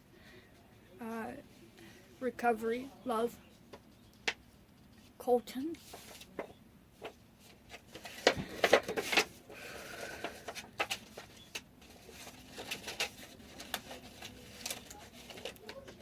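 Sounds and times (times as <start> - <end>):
paper crinkling and rustling: 5.8 - 16.0.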